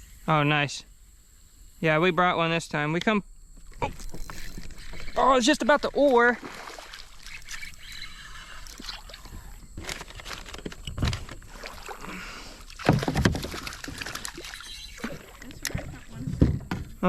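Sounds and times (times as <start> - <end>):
water splashing around boat: 3.6 - 17.0
hollow knocks and thumps: 12.8 - 14.3, 15.8 - 17.0.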